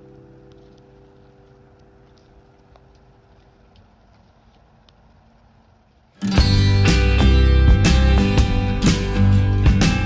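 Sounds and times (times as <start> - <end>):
soft ticks: 0.0 - 6.1.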